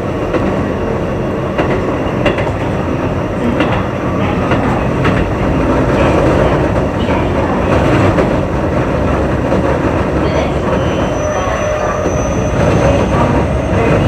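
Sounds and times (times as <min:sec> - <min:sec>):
train wheels rumbling on rails: 0:00.0 - 0:14.0
high-pitched wheel squeal: 0:10.7 - 0:14.0.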